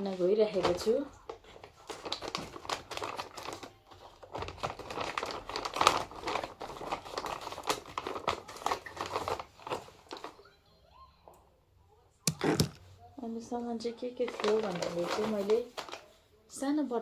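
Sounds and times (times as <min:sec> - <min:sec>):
packaging crinkling: 0:00.6 - 0:10.3, 0:12.3 - 0:12.8, 0:14.3 - 0:16.0.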